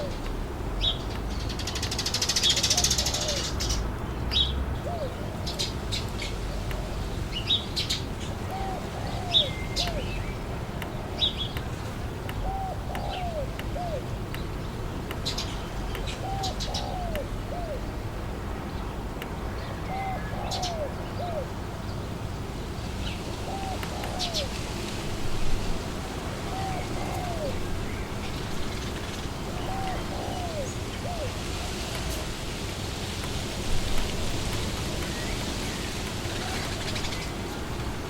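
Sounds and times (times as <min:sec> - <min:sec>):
small birds chirping: 0:00.0 - 0:32.2, 0:33.2 - 0:38.0
wind hiss: 0:00.0 - 0:38.0
dove cooing: 0:01.9 - 0:03.8, 0:04.8 - 0:10.3, 0:12.4 - 0:14.1, 0:16.1 - 0:17.9, 0:19.8 - 0:21.6, 0:23.3 - 0:24.7, 0:26.0 - 0:32.2.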